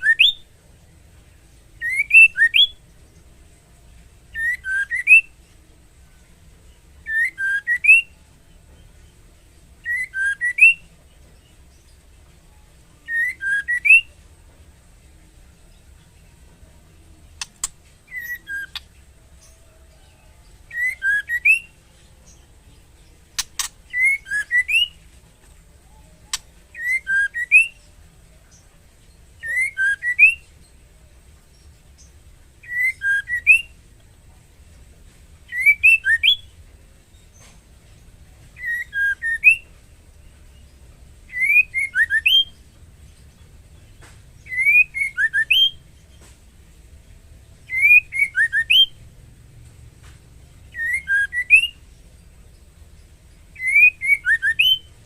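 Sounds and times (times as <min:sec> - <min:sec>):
bird whistled calls: 0:00.0 - 0:00.4, 0:01.8 - 0:02.8, 0:09.8 - 0:10.8, 0:17.4 - 0:18.9, 0:20.7 - 0:21.8, 0:23.4 - 0:25.0, 0:26.0 - 0:27.8, 0:29.4 - 0:30.4, 0:32.6 - 0:33.8, 0:35.5 - 0:36.5, 0:38.6 - 0:39.6, 0:41.3 - 0:42.6, 0:44.4 - 0:45.8, 0:47.7 - 0:49.0, 0:50.7 - 0:51.8, 0:53.6 - 0:54.9
sharp clicks: 0:17.3 - 0:17.8, 0:23.4 - 0:23.8.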